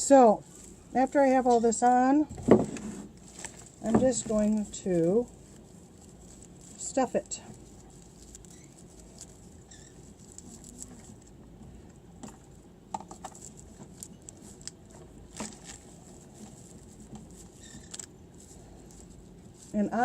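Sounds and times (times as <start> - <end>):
rustling and light clicking: 0.1 - 20.0
short squeaks: 8.4 - 9.0, 9.6 - 11.0, 17.5 - 18.1.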